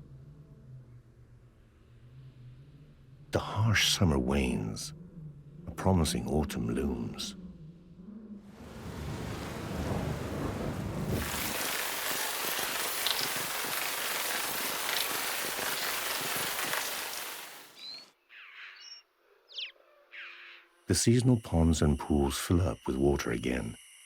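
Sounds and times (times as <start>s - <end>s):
heavy rain: 8.6s - 17.9s.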